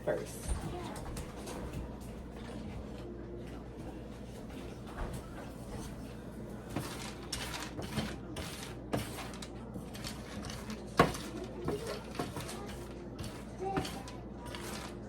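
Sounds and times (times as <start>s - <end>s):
seeds scraping and rustling: 6.7s - 11.4s, 14.5s - 15.0s.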